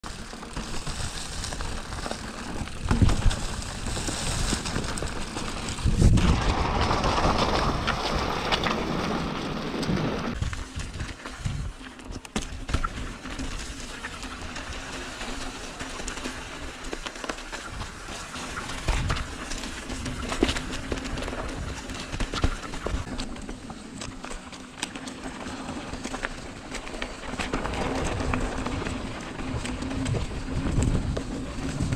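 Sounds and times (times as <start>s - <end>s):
bike rattles and knocks: 0.0s - 31.9s
bike tyres on dirt trail: 0.0s - 31.9s
wind on microphone: 2.7s - 8.6s.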